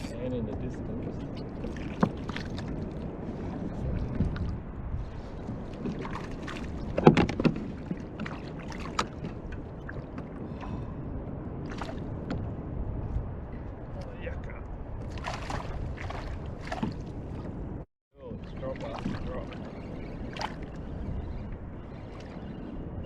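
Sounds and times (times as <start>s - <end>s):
water lapping against hull: 0.0s - 12.5s, 15.0s - 23.0s
gear knocking on hull: 6.9s - 9.6s.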